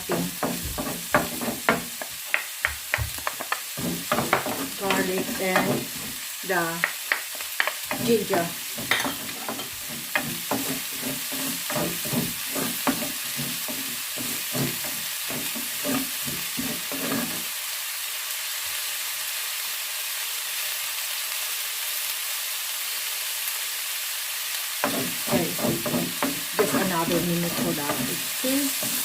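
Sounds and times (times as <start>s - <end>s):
vegetables sizzling in hot oil: 0.0s - 29.0s
spatula knocking against pan: 0.1s - 6.1s, 6.8s - 17.1s.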